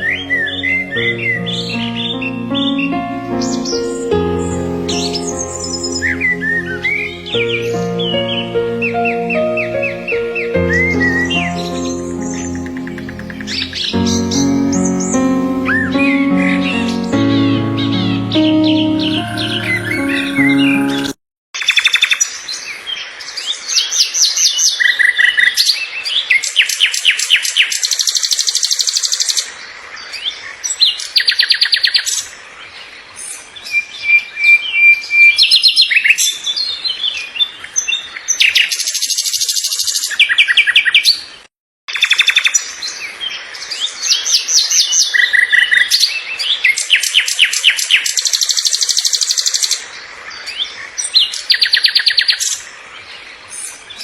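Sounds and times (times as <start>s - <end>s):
birds singing: 0.0s - 20.9s.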